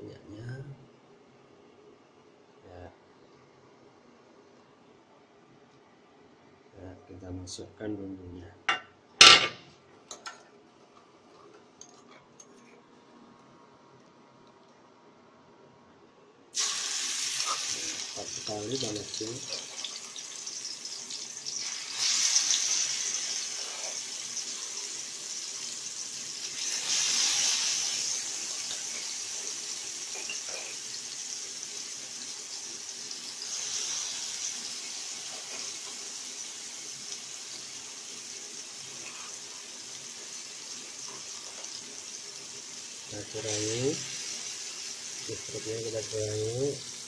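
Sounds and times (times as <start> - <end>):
paste sizzling in hot oil: 16.6 - 47.0.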